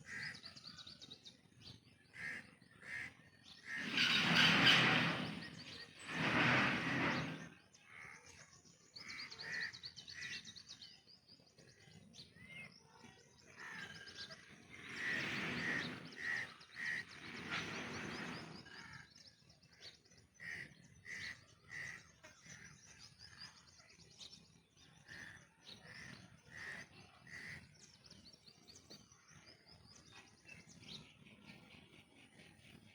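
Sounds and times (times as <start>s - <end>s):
loud bird calls: 2.1s - 8.4s, 13.6s - 19.2s.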